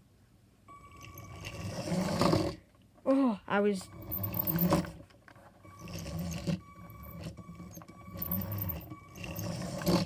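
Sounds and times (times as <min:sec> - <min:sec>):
toy train motor whining: 0:00.9 - 0:02.6, 0:03.9 - 0:10.0.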